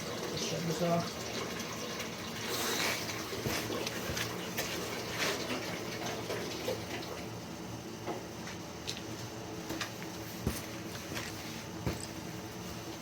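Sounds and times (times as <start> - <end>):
water gushing from drain valve: 0.0 - 7.4.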